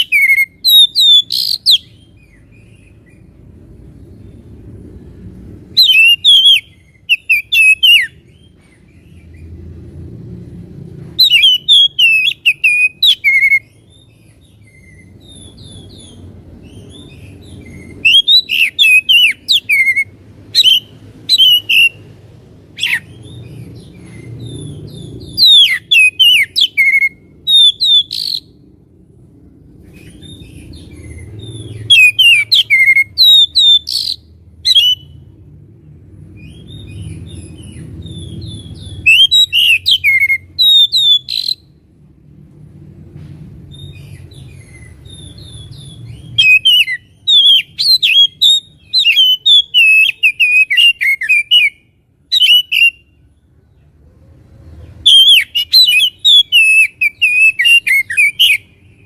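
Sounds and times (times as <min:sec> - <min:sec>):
bird singing whistled notes: 0:00.0 - 0:03.3, 0:05.7 - 0:09.5, 0:11.2 - 0:28.6, 0:29.9 - 0:35.3, 0:36.4 - 0:41.8, 0:43.7 - 0:53.2, 0:55.0 - 0:59.0
faint low rumble: 0:27.2 - 0:39.1.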